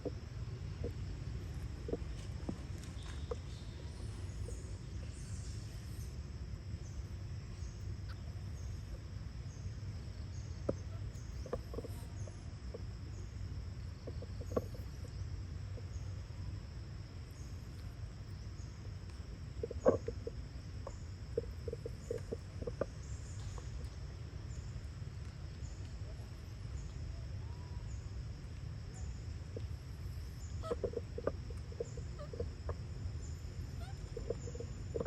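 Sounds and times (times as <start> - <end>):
monkeys squeaking: 33.8 - 35.0.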